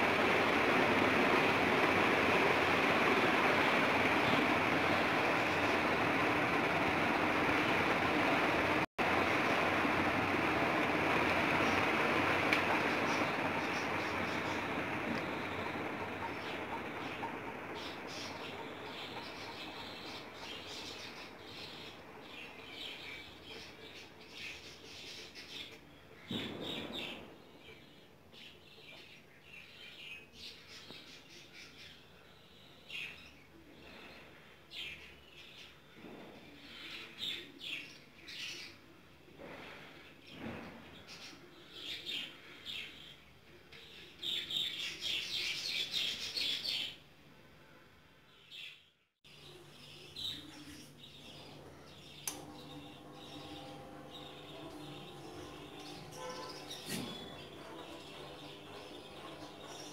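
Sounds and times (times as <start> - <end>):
ceiling fan humming: 0.0 - 29.2, 49.3 - 59.9
small birds chirping: 0.0 - 38.9, 48.3 - 59.9.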